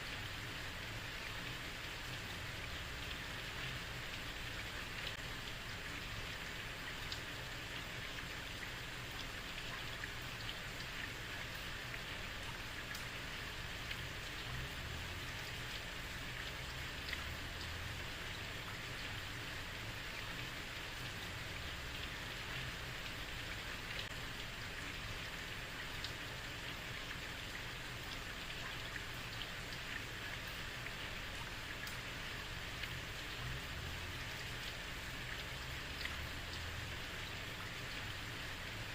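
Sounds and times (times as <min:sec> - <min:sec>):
rain drop ticks: 0:01.2 - 0:38.9.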